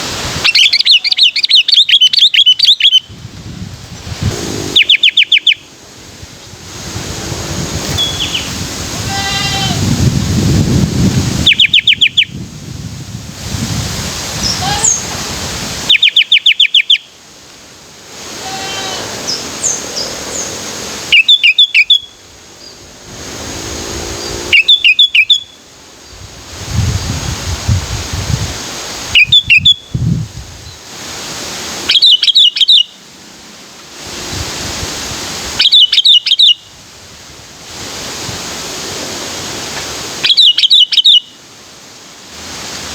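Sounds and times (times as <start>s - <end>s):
bird chirps: 0.5s - 3.1s, 4.6s - 5.7s, 11.5s - 12.3s, 15.9s - 17.1s, 21.1s - 22.8s, 24.2s - 25.6s, 31.9s - 33.0s, 35.6s - 36.6s, 40.2s - 41.4s
bird singing fast repeated notes: 0.5s - 3.1s, 4.5s - 5.8s, 11.5s - 12.3s, 15.9s - 17.2s, 21.1s - 22.9s, 24.2s - 25.6s, 31.9s - 33.0s, 35.6s - 36.6s, 40.2s - 41.4s.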